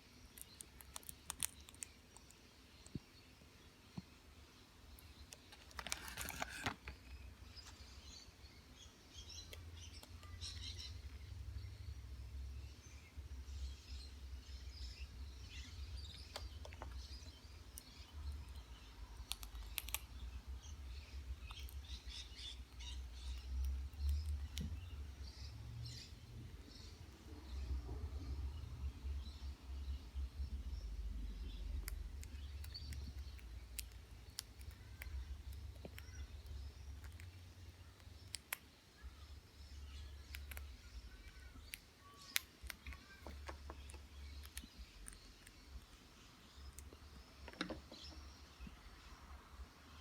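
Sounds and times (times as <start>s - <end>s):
beak crunching chips: 0.3s - 2.3s, 5.4s - 6.9s.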